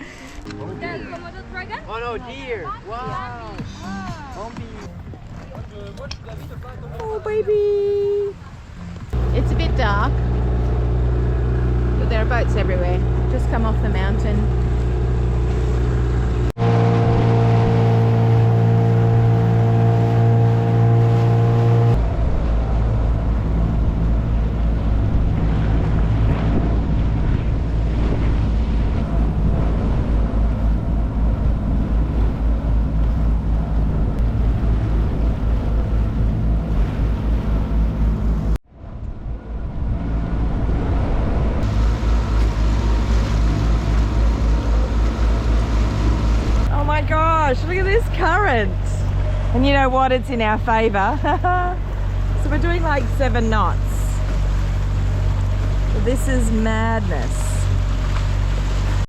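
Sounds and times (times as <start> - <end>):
boat engine running: 0.0 - 59.0
water noise: 0.0 - 59.0
wind noise: 21.9 - 49.8.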